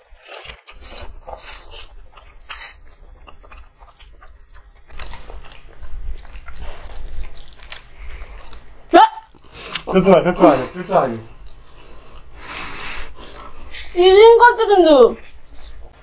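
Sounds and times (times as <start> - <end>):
chewing and biting fried chicken: 0.0 - 8.8.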